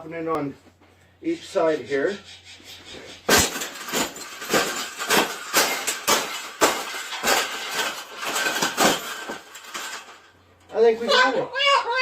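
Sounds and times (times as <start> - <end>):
metal wire cage clanking: 3.2 - 10.8.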